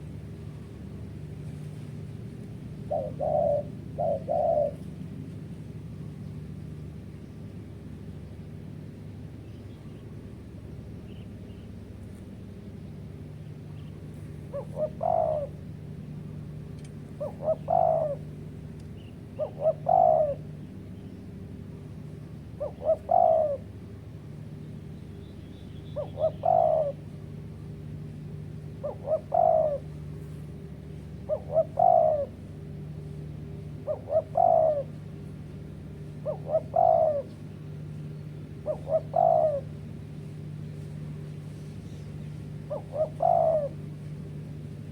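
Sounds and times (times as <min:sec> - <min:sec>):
dove cooing: 0:02.7 - 0:05.2, 0:14.0 - 0:16.1, 0:17.1 - 0:21.5, 0:22.4 - 0:24.0, 0:25.9 - 0:44.8.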